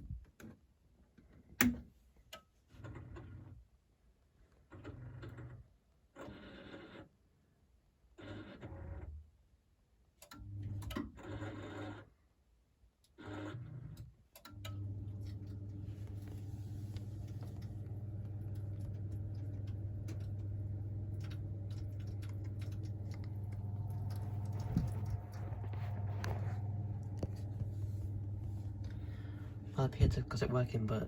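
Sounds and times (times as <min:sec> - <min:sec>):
boiler low hum: 0:14.5 - 0:31.0.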